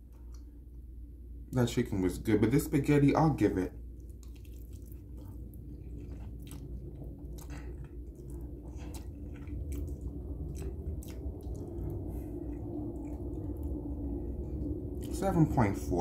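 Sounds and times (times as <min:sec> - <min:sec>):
steady low hum: 0:00.0 - 0:16.0
person chewing spaghetti: 0:03.9 - 0:15.4
wet mouth clicks and smacks: 0:06.2 - 0:13.9.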